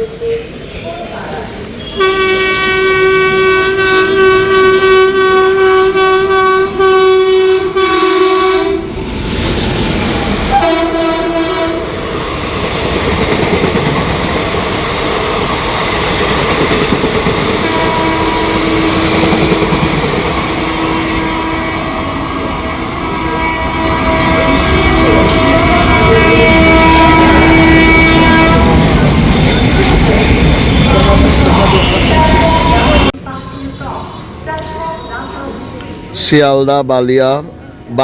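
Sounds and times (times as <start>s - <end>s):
faint steady horn tone: 1.8s - 8.9s, 10.5s - 11.9s, 17.6s - 28.8s
train horn blast: 1.8s - 9.0s, 10.5s - 12.0s, 17.6s - 29.6s, 30.6s - 33.1s
train wheels clattering past: 6.7s - 33.1s.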